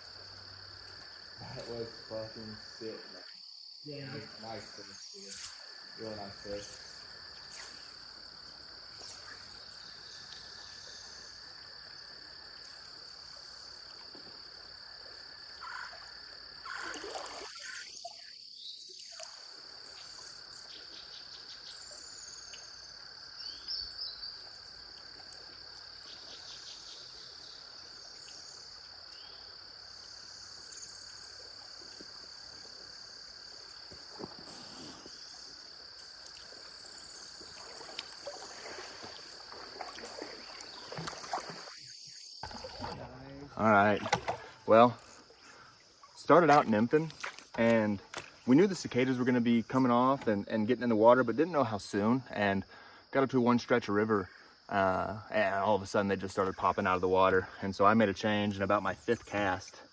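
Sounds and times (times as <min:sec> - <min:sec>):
cicadas droning: 0:00.0 - 0:59.9.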